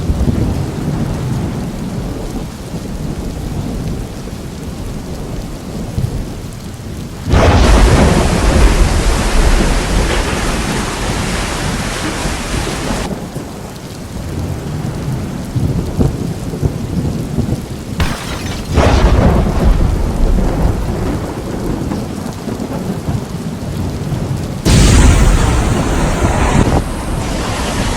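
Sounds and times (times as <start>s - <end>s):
heavy rain: 0.0s - 27.9s
deep rumbling thunder: 7.2s - 13.4s, 14.4s - 27.9s.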